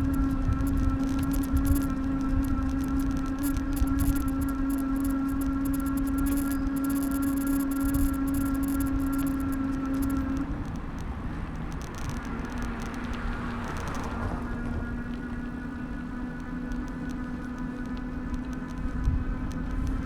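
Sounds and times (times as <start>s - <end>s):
steady hum: 0.0s - 20.0s
street traffic rumble: 0.0s - 20.0s.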